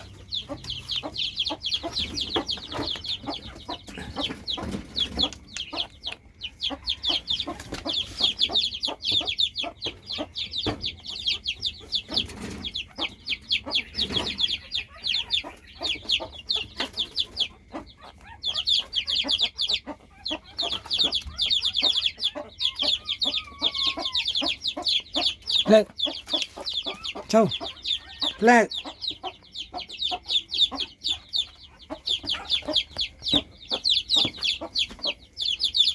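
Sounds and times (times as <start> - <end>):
young animal crying: 17.8 - 29.0.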